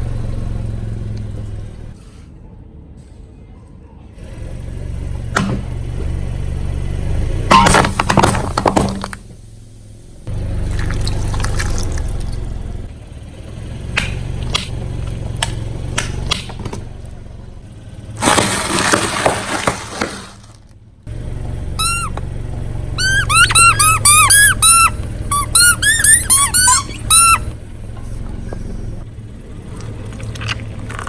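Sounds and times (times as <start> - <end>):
car engine idling: 0.0 - 2.0, 4.2 - 31.0
high rubbery squeaks: 7.5 - 9.3, 21.7 - 29.0
tyre crushing objects: 7.5 - 9.3, 18.2 - 20.6.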